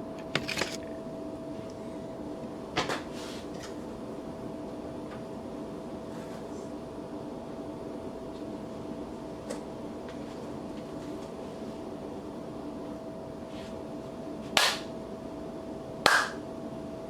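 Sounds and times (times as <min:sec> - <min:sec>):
steady electrical hum: 0:00.0 - 0:06.1.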